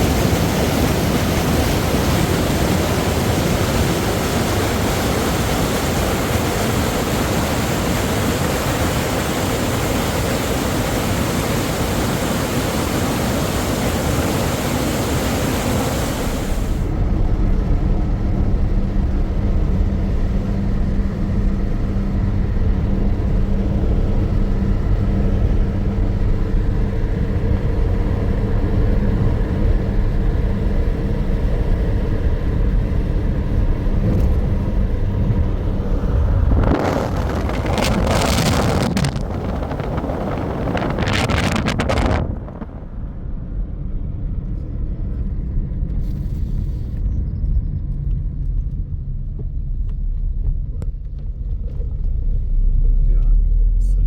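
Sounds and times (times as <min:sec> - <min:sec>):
loud hissing rush: 0:00.0 - 0:16.9
motor vehicle engine rumbling: 0:15.9 - 0:54.0.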